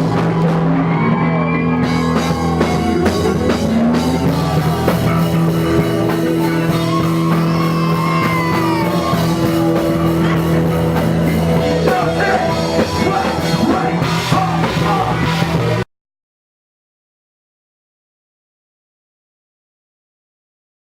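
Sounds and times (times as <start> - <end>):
loud rock music: 0.0 - 15.8
person singing: 0.0 - 15.8.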